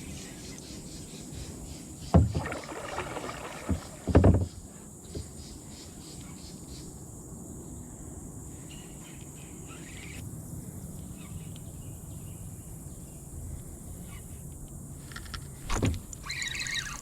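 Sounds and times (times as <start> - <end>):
insects buzzing: 1.7 - 17.0
loud thump: 2.2 - 4.6
faint bird chirps: 16.2 - 17.0.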